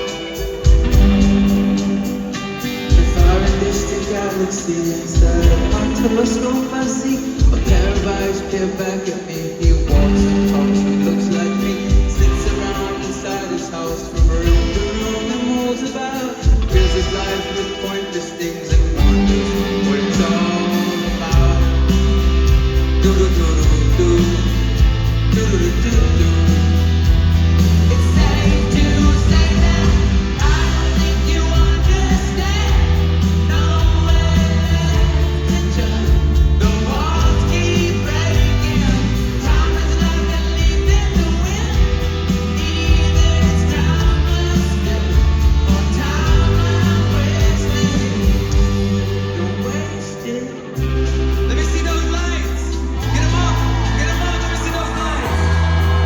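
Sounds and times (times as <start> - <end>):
guitars: 0.0 - 56.0
person singing: 0.0 - 56.0
bass line: 0.6 - 4.1, 9.7 - 11.3, 18.9 - 56.0.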